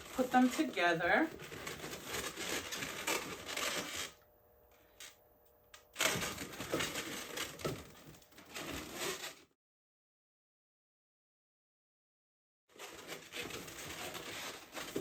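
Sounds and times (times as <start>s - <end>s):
balloons rubbing and crinkling: 0.0s - 4.2s, 6.0s - 9.5s, 12.7s - 15.0s.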